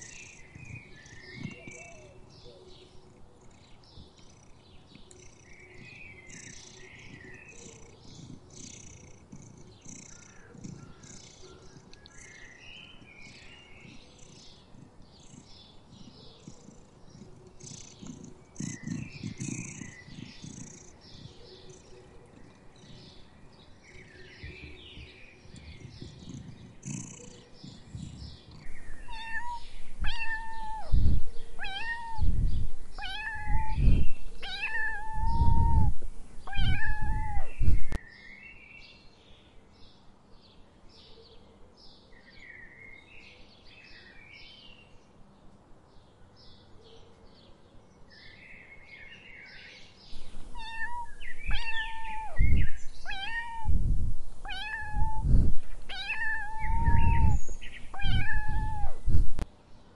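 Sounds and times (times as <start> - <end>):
cat purring: 0.0 - 38.0, 50.1 - 59.4
cat meowing: 28.7 - 37.7, 50.5 - 59.1.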